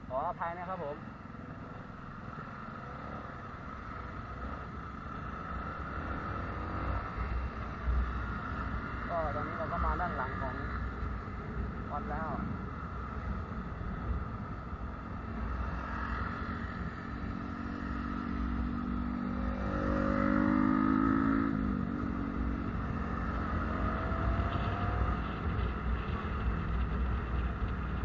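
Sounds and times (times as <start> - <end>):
vehicle engine and road rumble: 0.0 - 28.0
louder engine passing by: 15.0 - 25.5.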